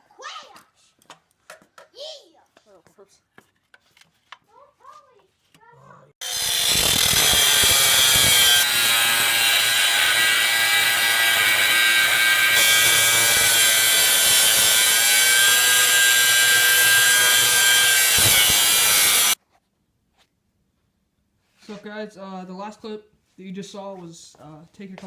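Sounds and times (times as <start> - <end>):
angle grinder cutting metal: 6.2 - 19.4.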